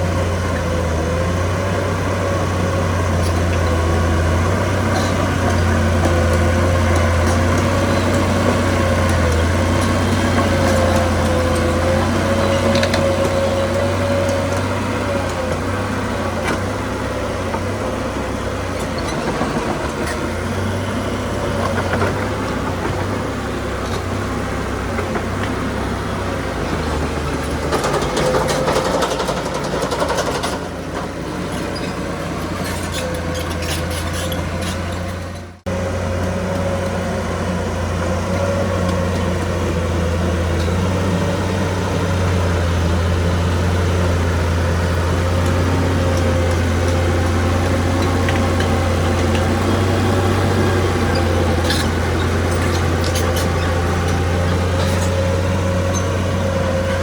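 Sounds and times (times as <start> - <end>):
heavy diesel engine running: 0.0 - 57.0
metallic rattling and clanking: 27.3 - 35.6.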